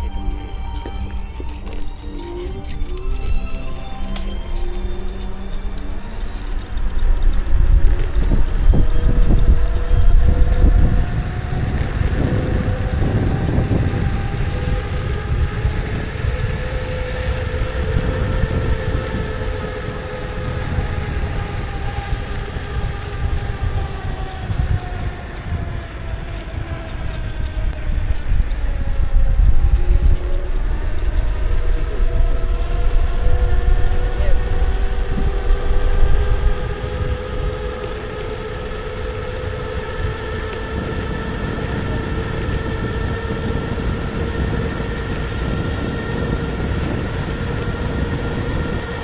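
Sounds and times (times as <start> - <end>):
electric scooter motor whining: 0.0 - 49.0
wind rumble on microphone: 0.0 - 49.0.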